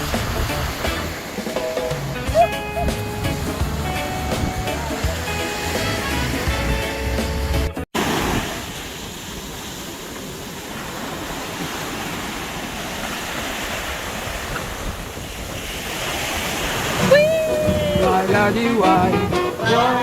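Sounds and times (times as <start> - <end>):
sea surf washing onto beach: 0.0 - 20.0
wind buffeting microphone: 8.2 - 19.8.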